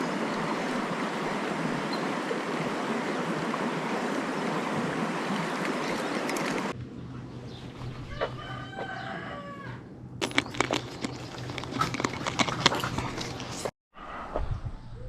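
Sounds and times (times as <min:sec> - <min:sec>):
dense clicking and rustling: 0:10.2 - 0:13.7.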